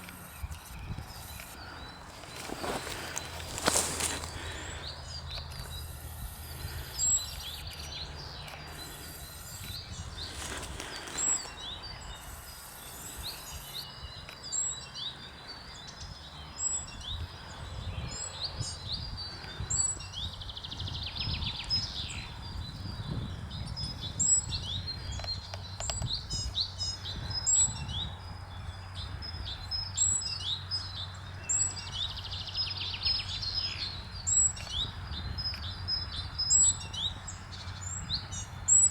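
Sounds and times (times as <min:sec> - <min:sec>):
low outdoor rumble: 0:00.0 - 0:14.3
small birds chirping: 0:00.0 - 0:38.9.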